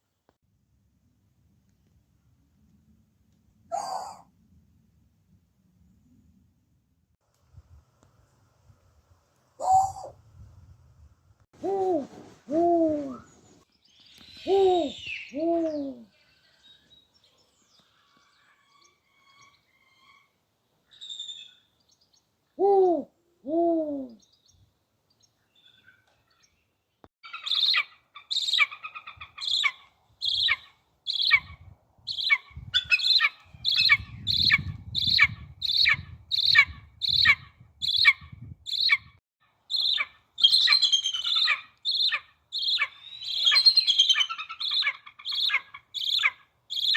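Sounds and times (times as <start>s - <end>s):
owl hooting: 3.7s - 4.3s, 9.6s - 10.2s, 14.4s - 16.1s
bird sharp high-pitched calls: 39.7s - 46.9s.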